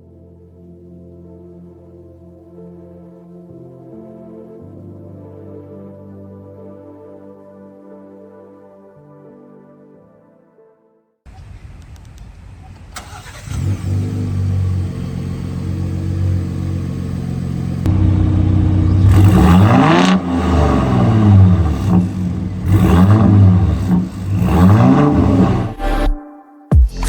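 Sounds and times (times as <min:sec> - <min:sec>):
truck engine starting and revving: 0:12.6 - 0:26.2.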